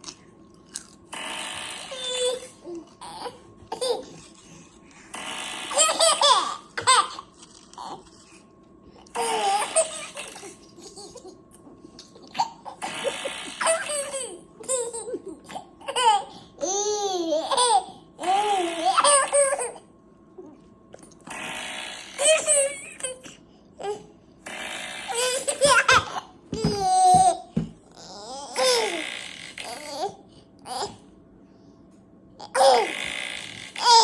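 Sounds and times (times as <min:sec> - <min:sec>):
short noisy bursts: 0:01.1 - 0:02.0, 0:05.1 - 0:06.9, 0:21.3 - 0:22.4, 0:24.4 - 0:26.0
baby laughing: 0:01.9 - 0:04.4, 0:05.7 - 0:08.1, 0:09.2 - 0:11.4, 0:12.0 - 0:19.9, 0:22.2 - 0:24.0, 0:25.1 - 0:29.0, 0:32.4 - 0:32.9, 0:33.8 - 0:34.0.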